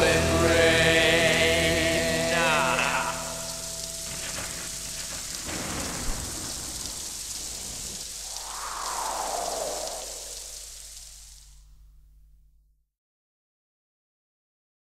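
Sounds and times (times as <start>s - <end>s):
steady falling rain: 0.0s - 11.6s
rumbling thunder: 4.2s - 11.4s.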